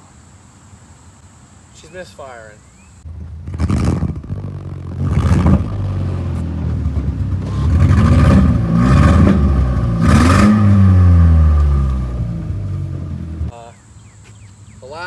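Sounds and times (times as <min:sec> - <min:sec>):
car engine misfiring and revving: 0:03.0 - 0:13.5.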